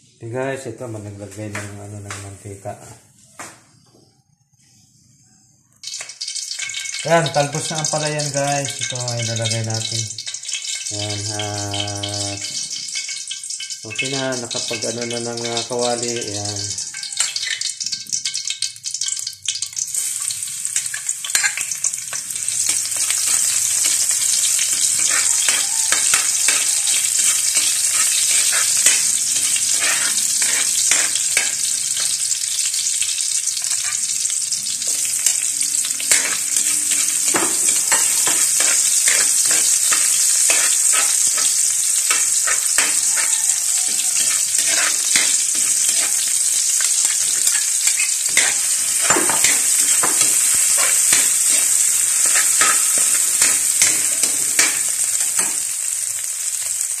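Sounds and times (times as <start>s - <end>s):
garlic and onion sizzling in oil: 0.2s - 57.0s
spatula scraping and tapping pan: 5.8s - 7.0s, 11.7s - 16.0s, 16.8s - 32.3s, 33.6s - 34.1s, 36.0s - 55.6s.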